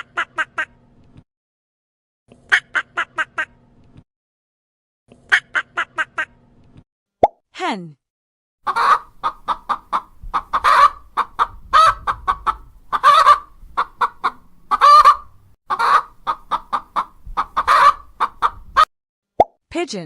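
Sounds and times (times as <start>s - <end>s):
hen clucking: 8.6s - 18.9s.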